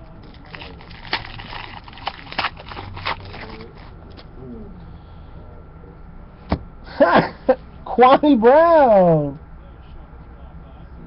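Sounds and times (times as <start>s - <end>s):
steady low hum: 0.0s - 11.0s
cards clicking and rustling: 0.2s - 4.3s.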